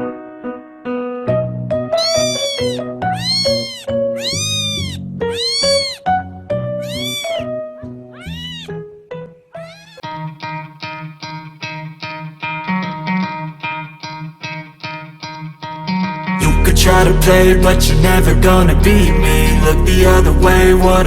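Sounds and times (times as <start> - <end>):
cat meowing: 2.0 - 6.1, 6.8 - 7.5, 8.1 - 8.8, 9.6 - 10.1
background music: 16.3 - 21.0.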